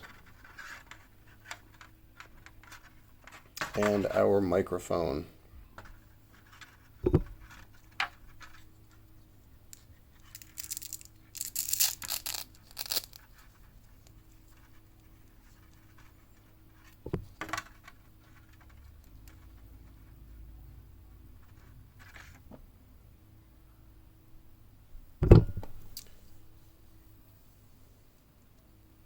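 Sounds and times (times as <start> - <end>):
knock on box: 7.0 - 7.4, 25.2 - 25.7
packaging rustling: 10.2 - 14.1.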